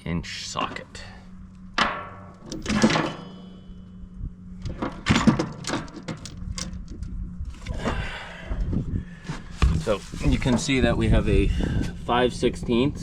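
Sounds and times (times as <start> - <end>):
low steady hum: 0.0 - 13.0
metal hand tools clattering: 1.8 - 3.6.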